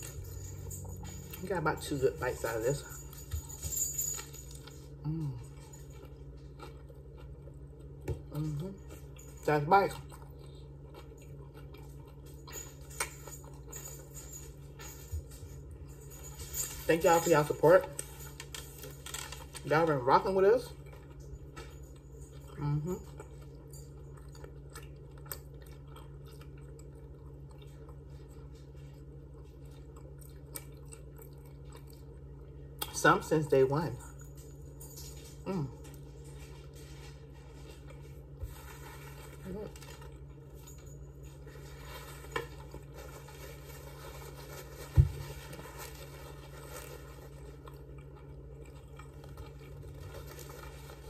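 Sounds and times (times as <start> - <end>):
steady low hum: 0.0 - 51.0
person chewing: 4.4 - 14.0, 20.7 - 33.0, 35.4 - 51.0
paper napkin rustling: 41.5 - 47.5.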